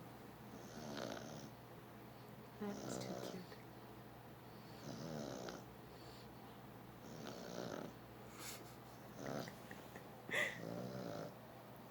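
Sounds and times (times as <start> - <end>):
dog snoring with rasping breaths: 0.5 - 1.6, 2.7 - 3.6, 4.5 - 6.3, 7.0 - 8.0, 9.1 - 9.6, 10.5 - 11.4.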